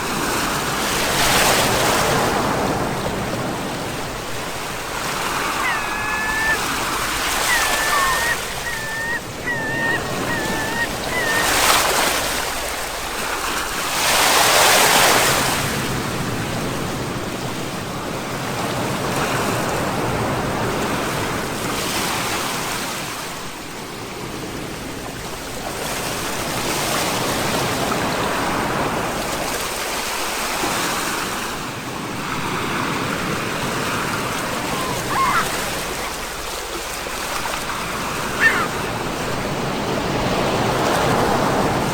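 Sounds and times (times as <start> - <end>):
sea waves breaking ashore: 0.0 - 16.9, 26.0 - 41.9
high chirps: 5.5 - 11.8.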